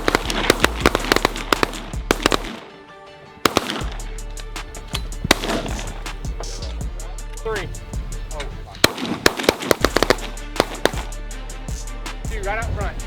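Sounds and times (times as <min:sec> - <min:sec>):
shotgun shots: 0:00.0 - 0:02.8, 0:03.4 - 0:04.1, 0:05.0 - 0:06.2, 0:08.8 - 0:11.2
background music: 0:00.0 - 0:13.0.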